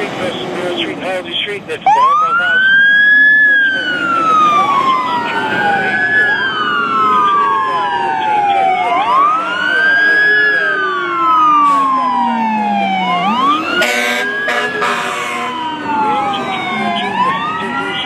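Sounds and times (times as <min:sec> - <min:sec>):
fire engine sirens wailing: 0:00.0 - 0:18.0
horn blasts: 0:13.8 - 0:15.6.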